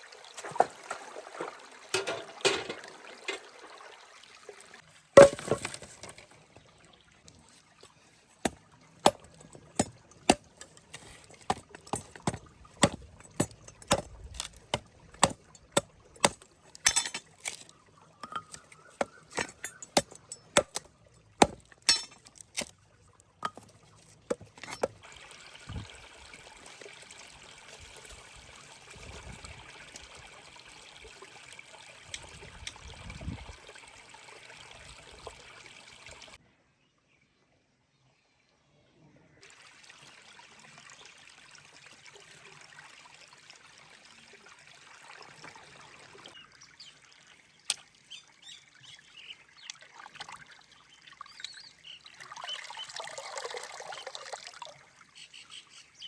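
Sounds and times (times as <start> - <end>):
utensils clinking on cookware: 1.9 - 3.4, 15.2 - 20.8, 21.4 - 22.6.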